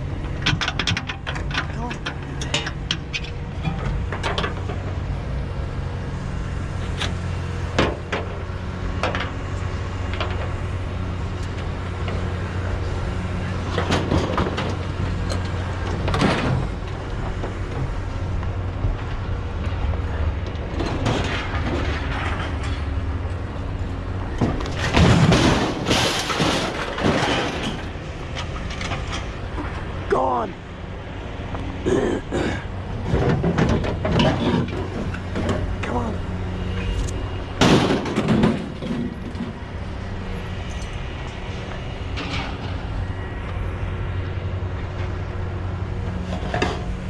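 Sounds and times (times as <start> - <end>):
vehicle engine humming: 0.0 - 47.0
rattling and clattering: 0.2 - 5.0, 24.4 - 29.8, 33.0 - 35.9
knocks and clunks: 32.5 - 36.3, 37.4 - 39.6.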